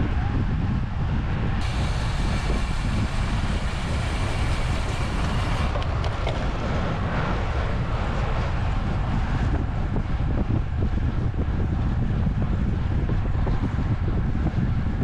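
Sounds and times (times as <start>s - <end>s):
wind buffeting microphone: 0.0s - 15.0s
bicycle tyre noise: 1.6s - 10.2s.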